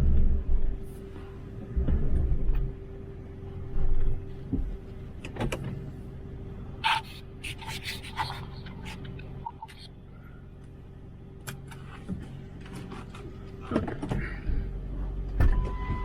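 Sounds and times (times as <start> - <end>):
vehicle engine hum: 0.0 - 16.0
creaks and rattles: 11.4 - 16.0.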